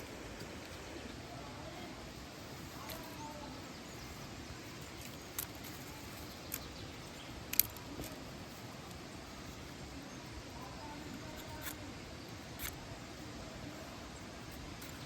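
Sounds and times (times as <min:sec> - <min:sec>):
sharp clicks: 0:04.9 - 0:09.4, 0:11.1 - 0:12.9.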